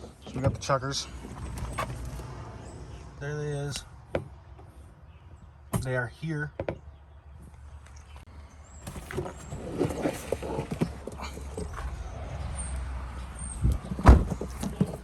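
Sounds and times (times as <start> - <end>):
birds scuffling: 7.4 - 15.0
loud thump: 14.0 - 14.5.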